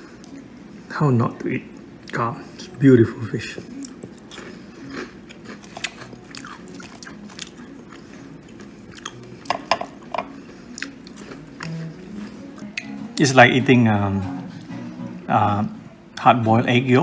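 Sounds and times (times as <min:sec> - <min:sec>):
chewing fried food: 0:00.0 - 0:00.9, 0:03.4 - 0:13.3.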